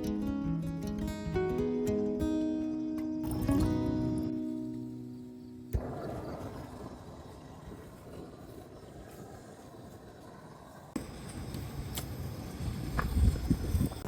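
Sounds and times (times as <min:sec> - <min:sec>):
guitar music: 0:00.0 - 0:05.8
strong wind: 0:05.7 - 0:14.0.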